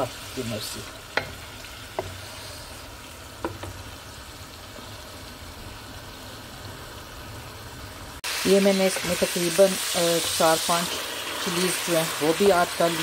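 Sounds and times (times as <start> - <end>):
chicken and onions sizzling in oil: 0.0 - 13.0
wooden spatula knocking on pan: 1.1 - 2.2, 3.4 - 3.8.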